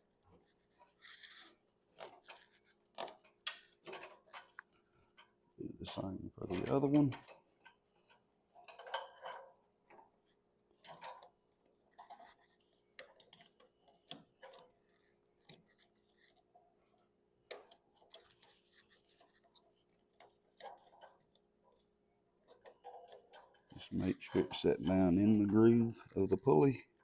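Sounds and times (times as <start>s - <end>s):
rubber belt rubbing and scraping: 0.0s - 4.7s, 5.8s - 16.6s, 17.5s - 21.8s, 22.4s - 27.0s.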